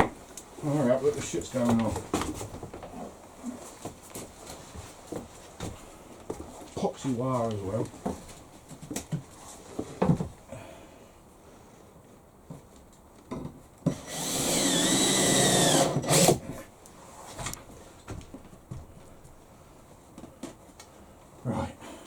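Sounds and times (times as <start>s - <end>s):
power drill drilling into wood: 13.9s - 16.4s.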